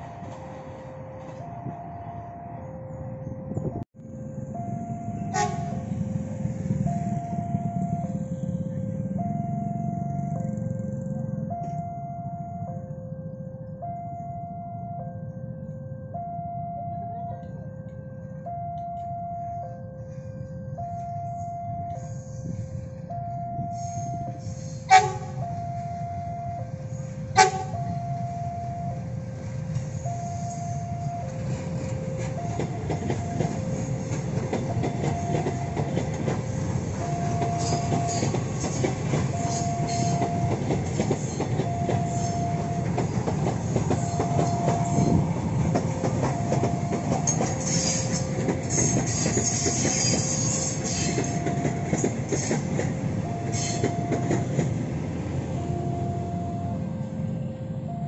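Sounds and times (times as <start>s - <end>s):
level crossing two-tone alarm: 4.4s - 6.0s, 6.6s - 29.3s, 30.0s - 50.2s, 51.0s - 54.8s, 55.4s - 58.0s
train horn blasts: 5.2s - 6.0s, 23.7s - 25.6s, 27.3s - 28.1s
train wheels clacking over rails: 31.4s - 55.0s.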